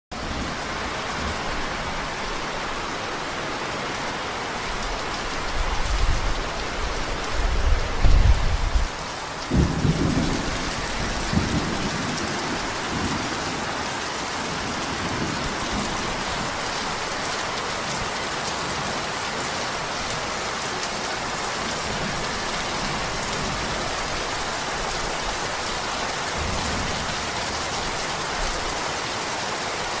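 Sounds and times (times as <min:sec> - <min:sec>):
steady rain: 0:00.1 - 0:30.0
thunder rumbling: 0:07.4 - 0:13.9.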